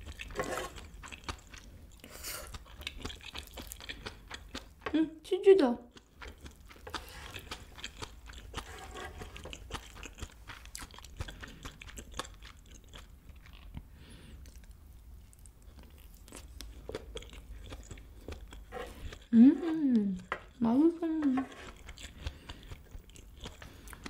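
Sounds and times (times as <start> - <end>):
person chewing: 0.0 - 4.9, 5.9 - 24.0.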